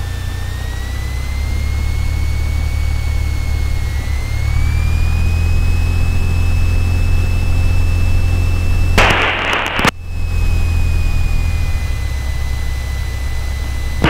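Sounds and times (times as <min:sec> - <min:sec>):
aircraft engine running: 0:00.0 - 0:14.0
thin steady whine: 0:00.0 - 0:14.0
radio static burst: 0:09.0 - 0:10.0.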